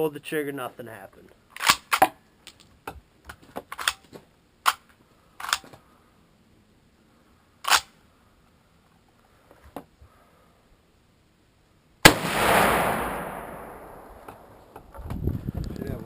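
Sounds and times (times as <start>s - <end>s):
rifle action metallic clicks: 4.6s - 5.7s.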